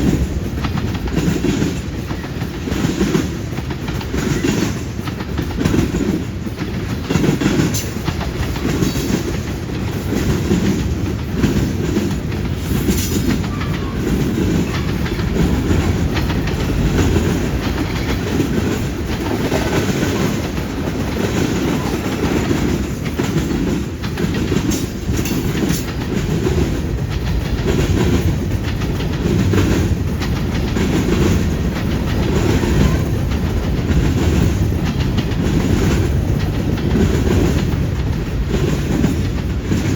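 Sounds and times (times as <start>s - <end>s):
freight train wheels clacking: 0.0s - 39.9s
train rumbling: 0.0s - 39.9s.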